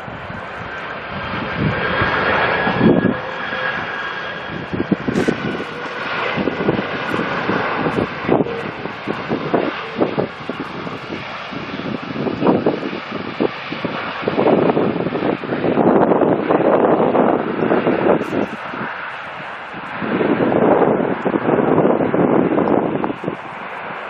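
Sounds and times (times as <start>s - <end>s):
airliner engine roar: 0.0s - 24.0s
wind buffeting microphone: 0.0s - 24.0s
high whine falling in pitch: 1.6s - 11.4s.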